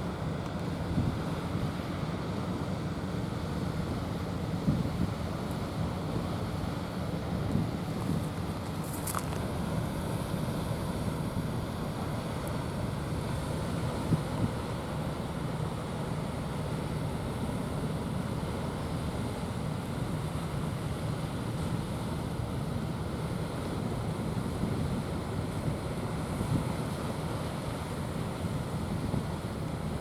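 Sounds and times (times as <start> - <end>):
ocean surf on shore: 0.0 - 30.0
wind on microphone: 4.6 - 5.2.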